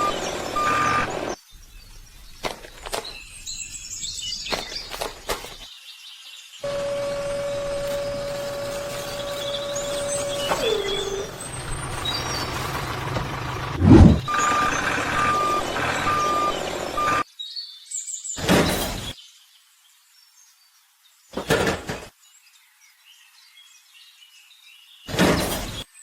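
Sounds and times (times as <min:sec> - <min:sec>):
reversing alarm beeping: 0:00.0 - 0:01.4, 0:06.6 - 0:12.0, 0:13.8 - 0:17.2
truck whine: 0:00.0 - 0:01.4, 0:06.7 - 0:17.2
loud thud: 0:13.8 - 0:14.3
short burst of noise: 0:13.8 - 0:15.6.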